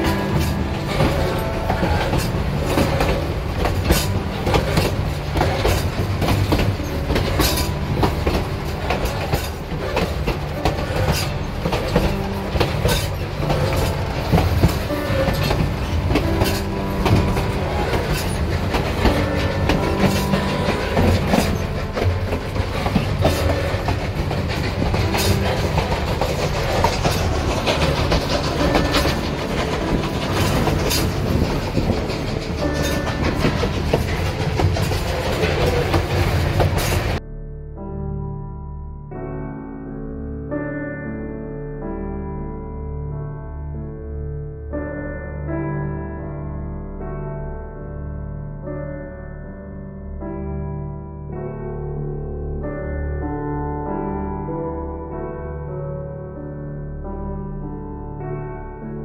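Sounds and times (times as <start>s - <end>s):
train car rumbling: 0.0s - 37.2s
wheels clacking over rail joints: 0.0s - 37.2s.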